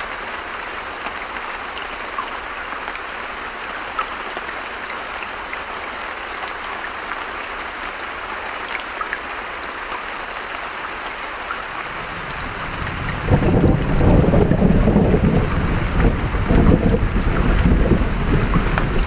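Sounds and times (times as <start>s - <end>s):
steady rain falling: 0.0s - 19.0s
low thunder rumble: 12.0s - 19.0s
raindrops ticking: 12.8s - 19.0s.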